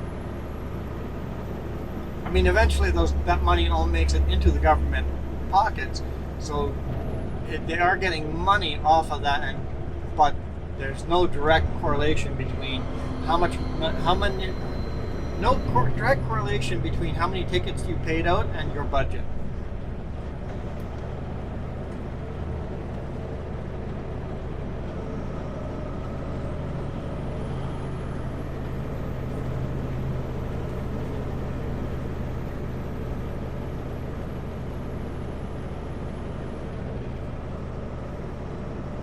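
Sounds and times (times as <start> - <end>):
diesel truck engine running: 0.0 - 39.0.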